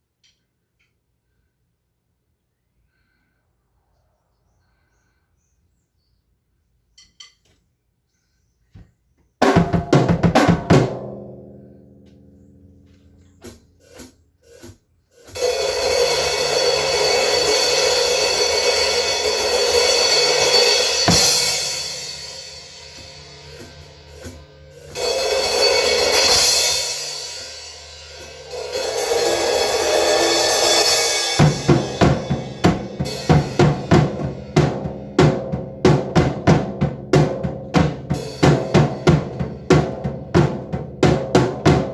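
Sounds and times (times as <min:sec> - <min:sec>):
cymbal wash: 0:15.4 - 0:34.5.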